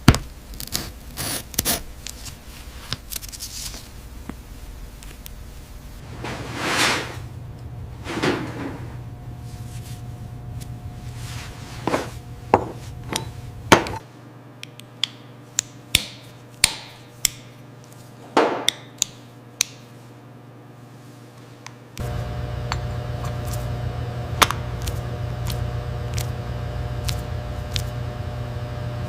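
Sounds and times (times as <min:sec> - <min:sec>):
low hum: 0:04.7 - 0:14.0, 0:22.0 - 0:29.0.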